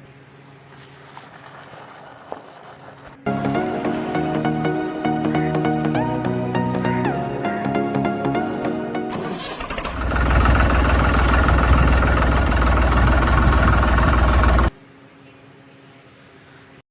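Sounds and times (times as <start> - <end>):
music: 3.2 - 9.5
engine cranking and running: 9.1 - 14.7.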